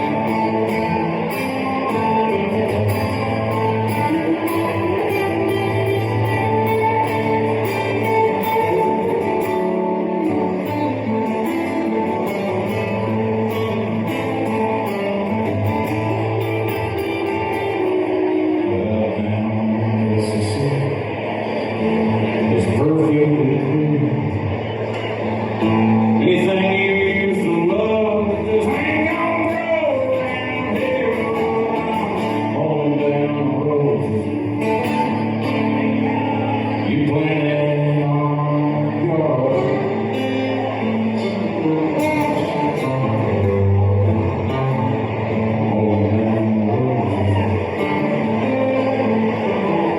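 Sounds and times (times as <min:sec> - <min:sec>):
country band guitars: 0:00.0 - 0:49.9
male singing: 0:18.5 - 0:21.1, 0:22.4 - 0:24.3, 0:26.2 - 0:44.1.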